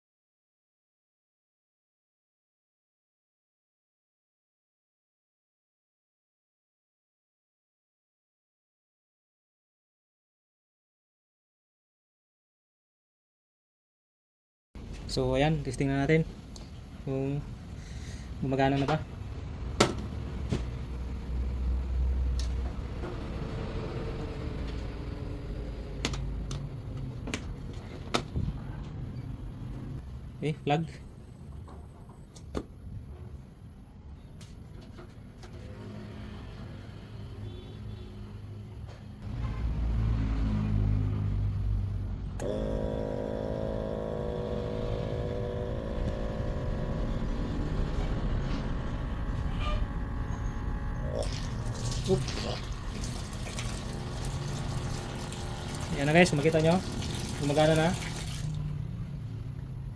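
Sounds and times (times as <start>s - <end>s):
pump motor humming: 42.4s - 58.9s
low rumble: 43.5s - 51.8s.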